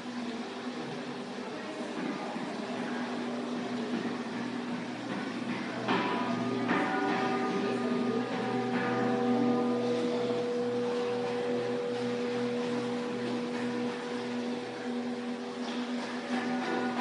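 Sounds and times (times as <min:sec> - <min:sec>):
low pulsing hum: 0:02.8 - 0:17.0
singing bowls ringing: 0:05.7 - 0:17.0.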